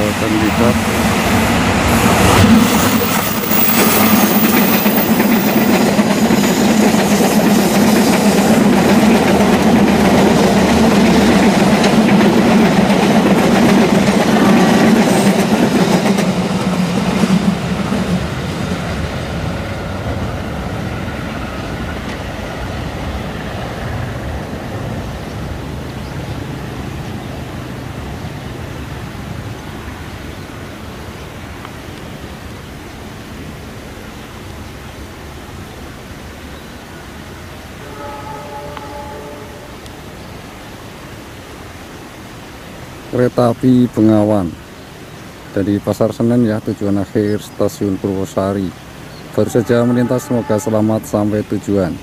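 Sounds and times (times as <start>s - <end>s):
train wheels clattering over rails: 0.0s - 19.0s
diesel locomotive passing: 0.0s - 31.6s, 33.1s - 41.8s, 45.4s - 52.0s.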